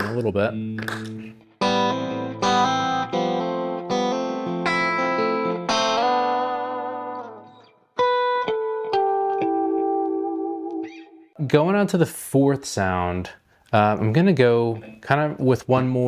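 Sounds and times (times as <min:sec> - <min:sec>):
clean electric guitar notes and chords: 0:00.0 - 0:11.4.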